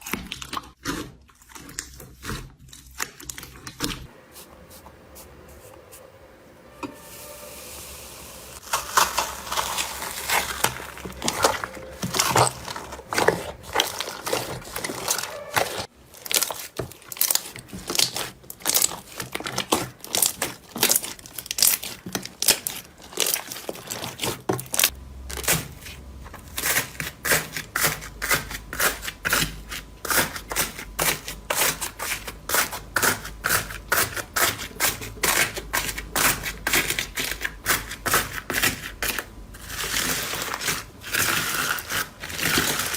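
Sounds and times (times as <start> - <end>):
slime crackling and popping: 8.6 - 25.0.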